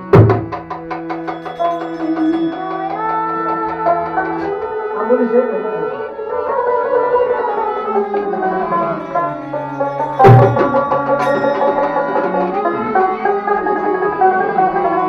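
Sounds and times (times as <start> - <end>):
hand drum strokes: 0.0 - 5.0, 7.2 - 14.2
plucked string instrument melody: 0.0 - 15.0.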